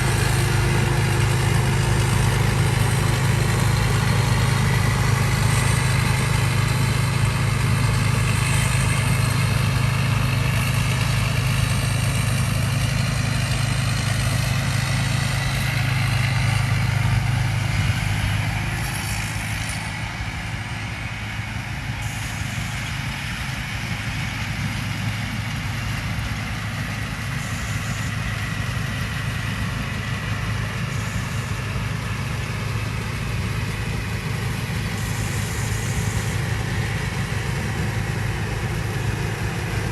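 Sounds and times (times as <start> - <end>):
harvesting machinery clattering: 0.0 - 18.3
combine harvester engine running: 0.0 - 39.9.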